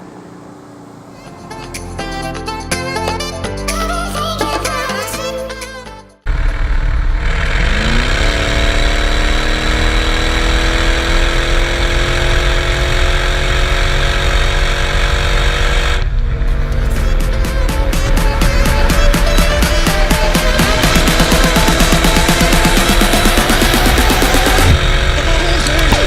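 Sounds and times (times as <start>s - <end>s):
road and wind noise: 0.0s - 1.8s, 6.3s - 20.0s, 23.4s - 26.0s
loud car exhaust accelerating: 6.3s - 26.0s.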